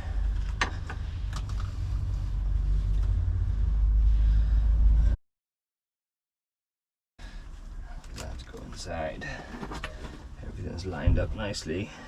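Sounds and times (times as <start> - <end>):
low rumble: 0.0 - 5.2.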